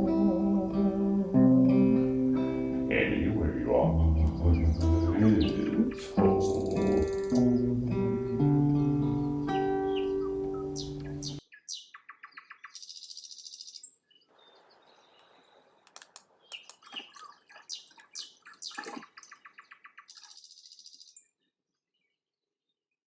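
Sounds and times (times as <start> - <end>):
songbirds singing fast trills: 3.9 - 8.4, 9.0 - 21.4.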